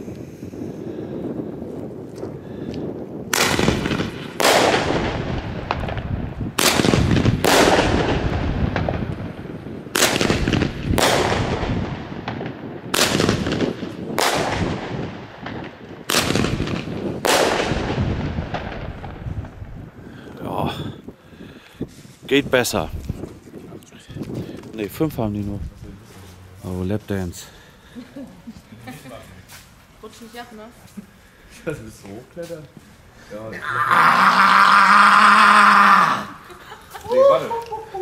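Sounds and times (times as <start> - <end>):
firework launch shots: 3.3 - 19.7
firework bangs in the sky: 3.3 - 19.9.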